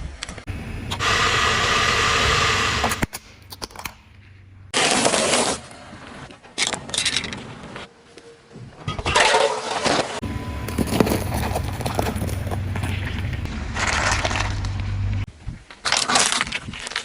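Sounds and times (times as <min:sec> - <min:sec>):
crunching under car tyre: 0:10.2 - 0:17.0.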